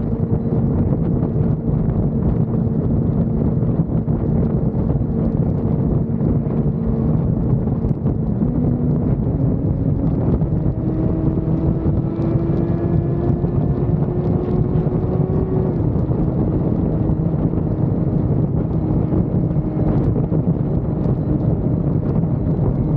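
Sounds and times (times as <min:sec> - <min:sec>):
motorcycle engine running: 0:00.0 - 0:22.9
wind noise on microphone: 0:00.0 - 0:22.9.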